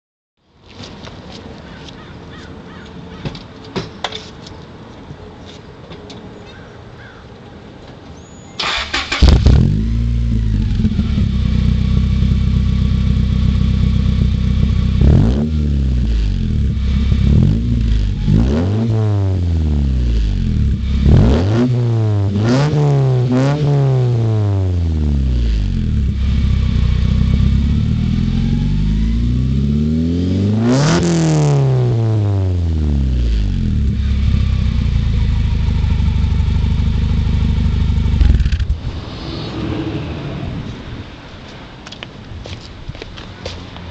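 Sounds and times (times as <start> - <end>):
car engine revving: 8.6 - 41.2
car engine starting: 8.6 - 41.2.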